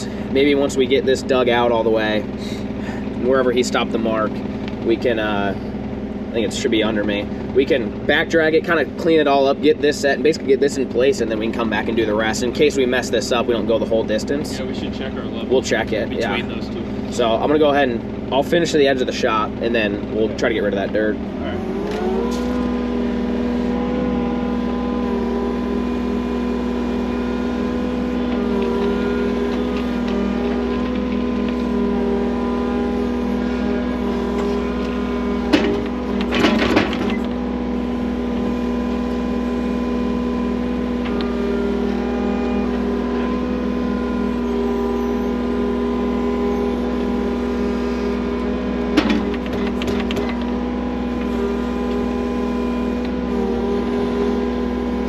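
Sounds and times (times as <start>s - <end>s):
earthmoving machine engine running: 0.0s - 55.0s
metallic clanks and knocks: 34.4s - 37.3s, 48.9s - 50.5s.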